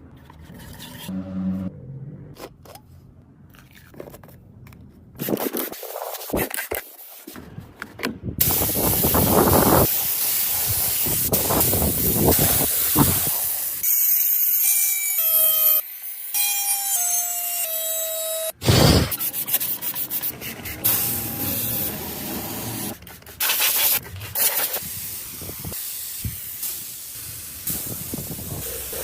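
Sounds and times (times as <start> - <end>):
whining tones changing pitch: 1.1 - 1.7
compressed air spraying hiss: 8.4 - 14.3, 20.8 - 29.0.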